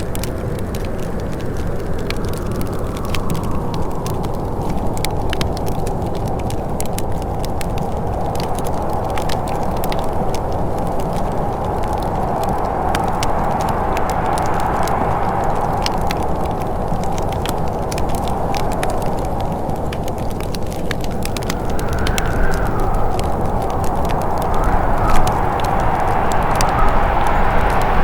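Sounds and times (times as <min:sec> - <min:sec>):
wood fire crackling and popping: 0:00.0 - 0:28.0
low rushing noise: 0:09.3 - 0:18.7, 0:20.7 - 0:28.0.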